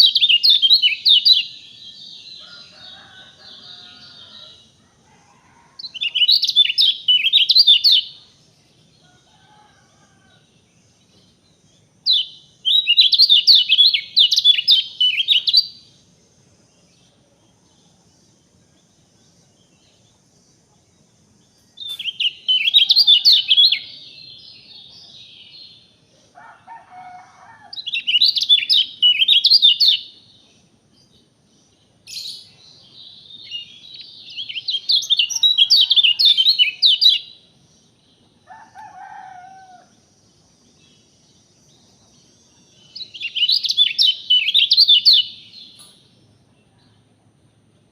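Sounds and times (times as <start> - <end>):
songbird warbling: 21.7 - 25.6.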